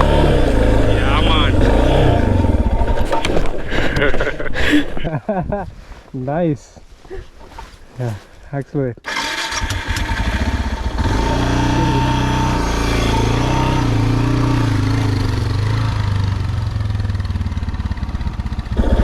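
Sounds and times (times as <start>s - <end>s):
motorcycle engine climbing hill: 0.0s - 5.1s, 9.1s - 19.0s.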